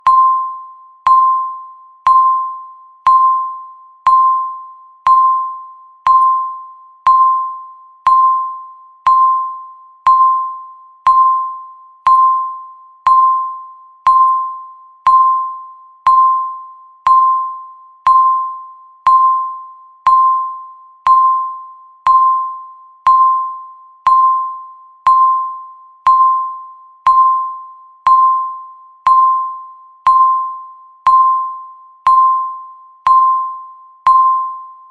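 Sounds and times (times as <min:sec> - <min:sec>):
countdown timer beeps: 0:00.0 - 0:34.9.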